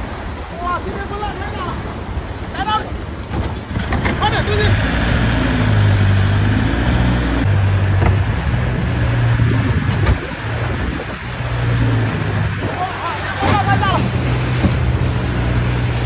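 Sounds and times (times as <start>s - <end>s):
boat engine running: 0.0s - 16.0s
wind: 0.0s - 16.0s
sharp knocks: 7.9s - 8.4s.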